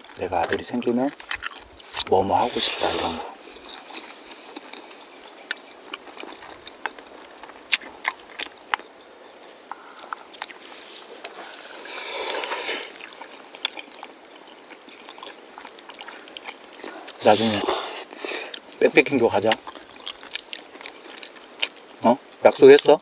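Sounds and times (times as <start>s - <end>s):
slurping noodles: 1.8s - 3.5s, 10.8s - 13.1s.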